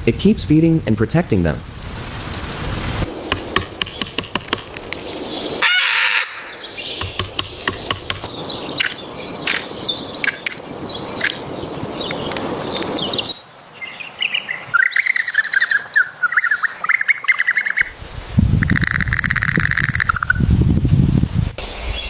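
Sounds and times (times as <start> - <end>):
steady hiss: 0.0 - 5.6
birds chirping: 3.0 - 17.9
high buzzy bird chirps and trill: 3.4 - 17.9.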